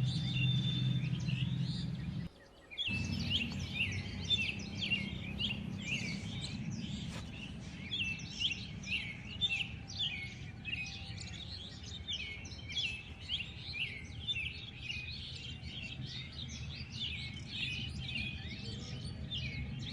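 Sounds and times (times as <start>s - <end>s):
low background rumble: 0.0s - 2.3s, 2.9s - 13.2s, 15.2s - 19.9s
small birds chirping: 0.0s - 19.9s.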